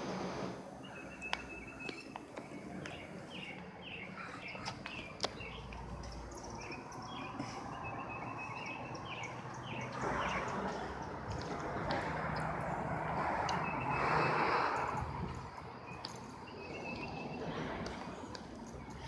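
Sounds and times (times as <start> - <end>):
small birds chirping: 0.8 - 11.6, 15.3 - 17.6.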